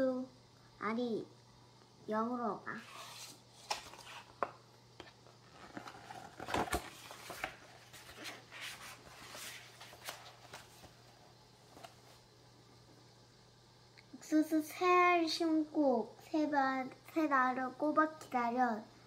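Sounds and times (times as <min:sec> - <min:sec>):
faint electrical hum: 0:00.0 - 0:19.0
book pages rustling: 0:02.8 - 0:12.2.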